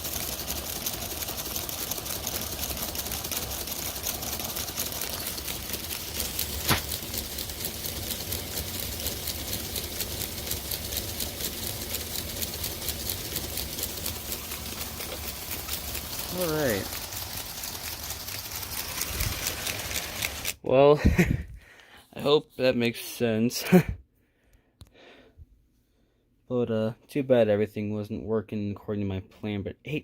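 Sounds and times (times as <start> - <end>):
plastic gears clicking: 0.0 - 20.6
small electric motors running: 0.0 - 20.6.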